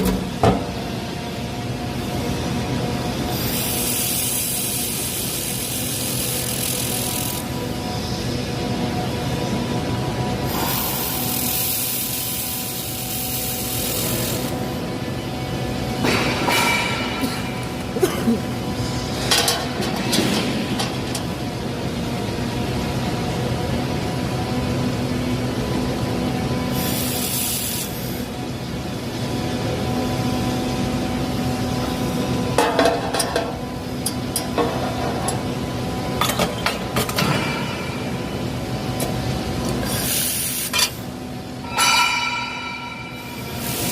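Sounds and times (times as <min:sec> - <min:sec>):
steady machine hum: 0:00.0 - 0:43.9
laser welder hiss: 0:03.2 - 0:08.3, 0:10.4 - 0:15.2, 0:26.7 - 0:28.3, 0:39.7 - 0:41.0, 0:43.2 - 0:43.9
metallic clanks: 0:41.6 - 0:43.9.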